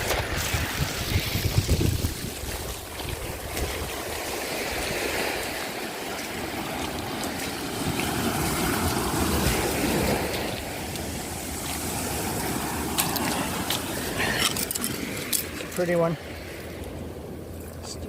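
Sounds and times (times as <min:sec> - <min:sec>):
seawater rushing over sand: 0:00.0 - 0:18.0.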